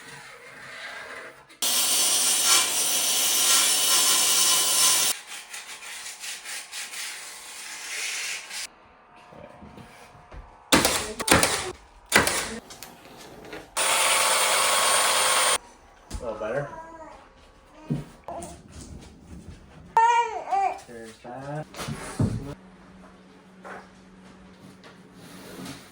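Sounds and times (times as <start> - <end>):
power tool cutting wood: 1.6 - 5.6, 13.8 - 15.6.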